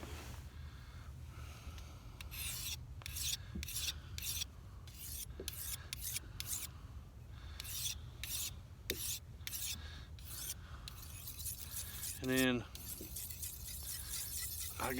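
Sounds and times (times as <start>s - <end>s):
knife scraping on whetstone: 2.3s - 6.7s, 7.6s - 14.9s.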